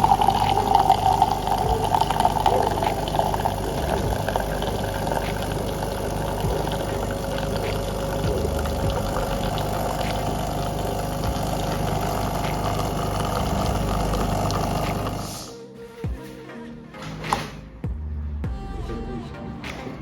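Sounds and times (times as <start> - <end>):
espresso machine pump humming: 0.0 - 15.5.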